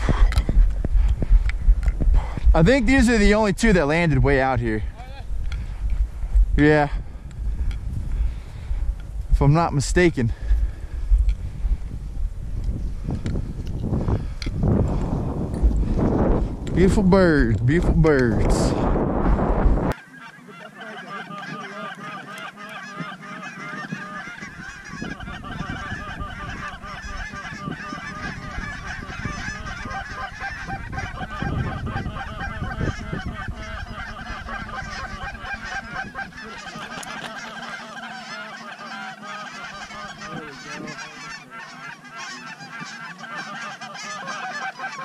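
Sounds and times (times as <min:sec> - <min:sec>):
flock of geese honking: 0:19.9 - 0:45.0.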